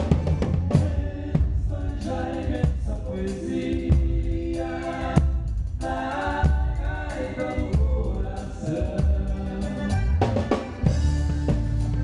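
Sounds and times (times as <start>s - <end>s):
drum hits: 0.0s - 3.2s
live band playing: 0.0s - 12.0s.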